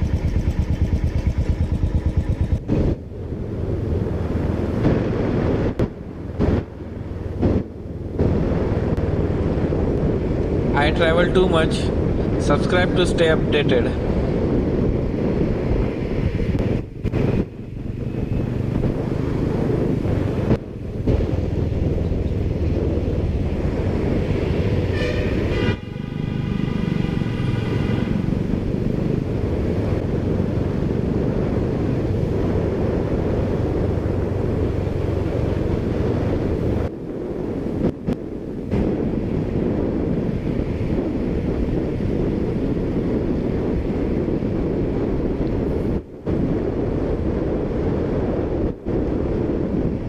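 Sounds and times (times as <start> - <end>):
low engine rumble: 0.0 - 47.4
wind buffeting microphone: 0.0 - 50.0
horn sounding: 24.8 - 28.2.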